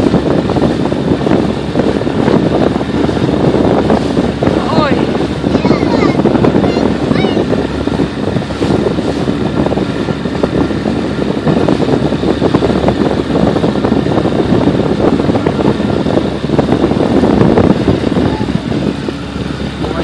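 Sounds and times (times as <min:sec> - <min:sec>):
motorboat motor running: 0:00.0 - 0:20.0
water slapping against hull: 0:00.0 - 0:20.0
wind buffeting microphone: 0:00.0 - 0:20.0.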